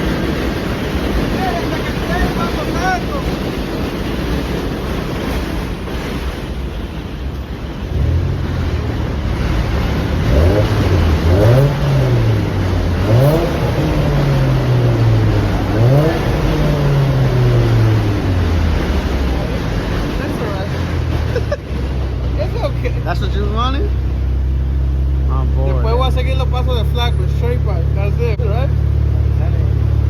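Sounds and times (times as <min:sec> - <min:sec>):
car engine revving: 0:07.7 - 0:30.0.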